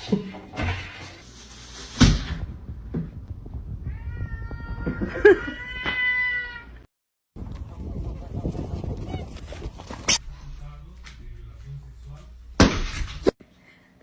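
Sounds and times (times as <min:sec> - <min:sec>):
cat meowing: 0:03.9 - 0:06.8.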